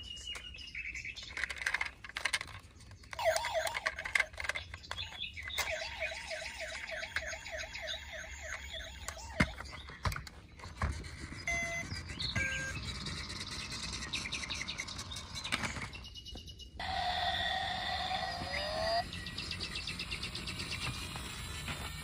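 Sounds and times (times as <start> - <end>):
sharp clicks: 1.2 - 10.4
chirping electronic tones: 3.1 - 16.1, 16.8 - 21.5
short electronic beeps: 5.6 - 9.6, 11.5 - 12.8
warbling siren-like tone: 5.6 - 9.6, 16.8 - 19.1.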